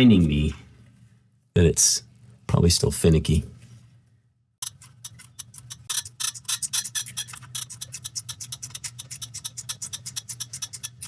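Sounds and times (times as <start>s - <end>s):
ratcheting wrench clicking: 4.6s - 11.0s.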